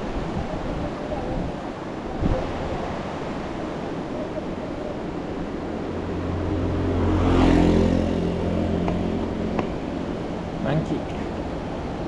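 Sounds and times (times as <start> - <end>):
wind rushing over microphone: 0.0 - 10.6
low engine hum: 4.4 - 12.0.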